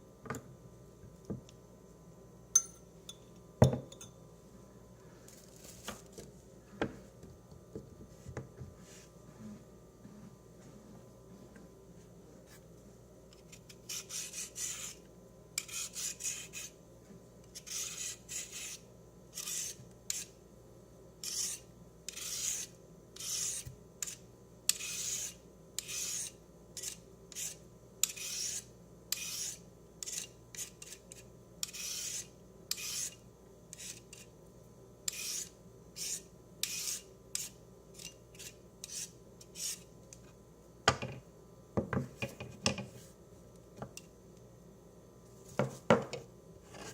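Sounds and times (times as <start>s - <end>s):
utensil scraping food: 13.4s - 15.0s, 17.5s - 20.3s, 21.2s - 34.3s.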